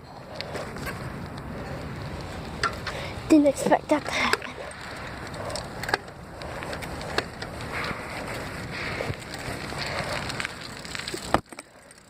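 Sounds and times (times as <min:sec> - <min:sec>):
bicycle tyres rolling: 0:00.0 - 0:12.0.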